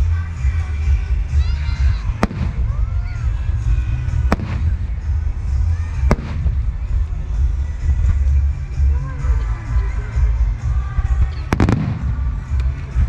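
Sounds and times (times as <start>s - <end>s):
background music: 0.0s - 13.0s
heavy low rumble: 0.0s - 13.0s
fireworks bangs: 2.1s - 2.9s, 4.2s - 5.2s, 5.8s - 6.9s, 11.5s - 13.0s.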